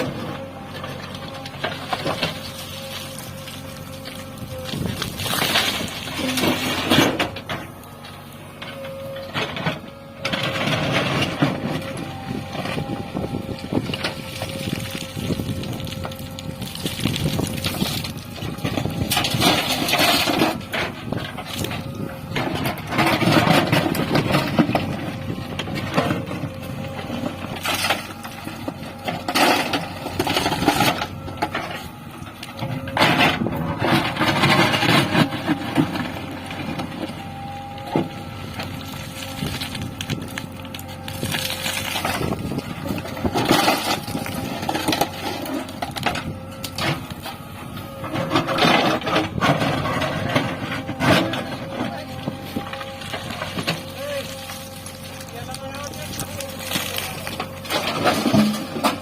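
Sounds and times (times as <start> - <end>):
backhoe engine whining: 0.0 - 59.0
metal clanks and knocks: 5.7 - 7.8, 57.4 - 59.0.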